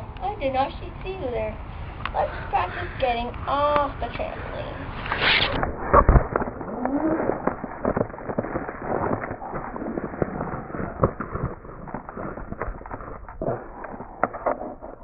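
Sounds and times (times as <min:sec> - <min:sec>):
handling crackles: 0:05.0 - 0:15.0.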